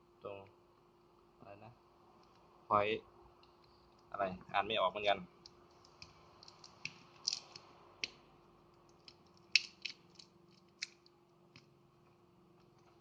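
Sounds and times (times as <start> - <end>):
small tools and plastic parts clicking: 5.4 - 11.7.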